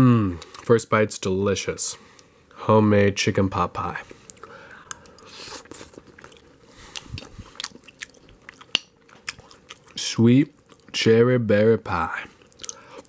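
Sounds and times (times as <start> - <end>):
chewing with soft crunches: 4.1 - 11.0, 12.4 - 13.0.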